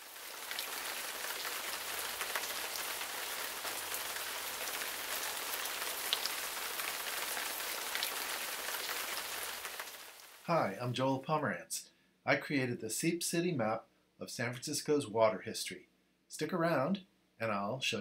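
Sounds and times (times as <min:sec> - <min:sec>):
shower water spraying: 0:00.0 - 0:10.4.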